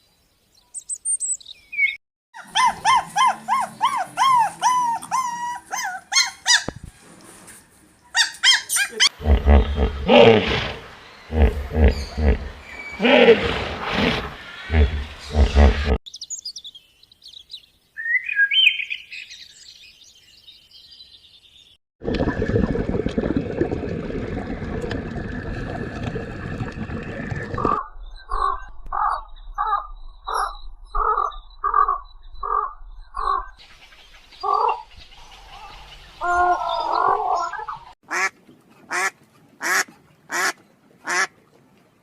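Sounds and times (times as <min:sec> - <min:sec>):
repeated bird calls: 0:08.0 - 0:21.3, 0:28.1 - 0:38.3
bird chirps and whistled calls: 0:14.6 - 0:20.2.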